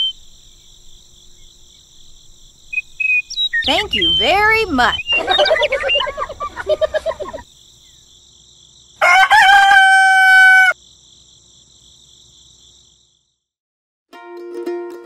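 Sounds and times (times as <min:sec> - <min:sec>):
rooster crowing: 0:09.0 - 0:10.8.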